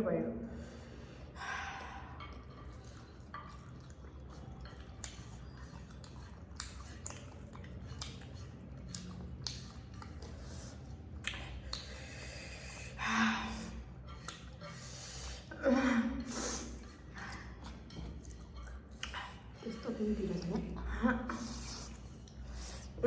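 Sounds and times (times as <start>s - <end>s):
wet chewing: 1.0s - 23.0s.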